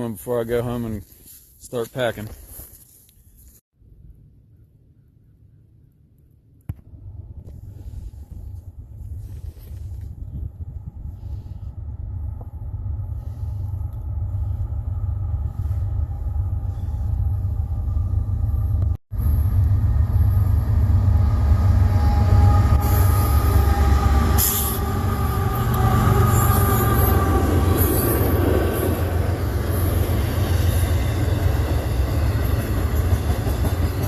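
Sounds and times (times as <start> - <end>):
train deep rumble: 7.0 - 34.0
wheels squealing on rails: 21.2 - 34.0.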